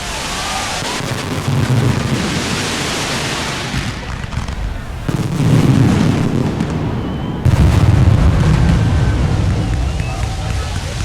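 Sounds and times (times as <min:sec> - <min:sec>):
fireworks bursting in low booms: 0:00.0 - 0:11.0.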